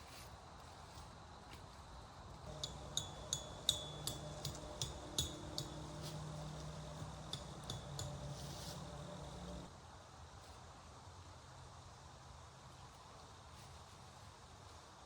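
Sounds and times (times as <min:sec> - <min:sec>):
low steady hum: 0:02.4 - 0:09.7
light metallic clinks: 0:02.5 - 0:09.7.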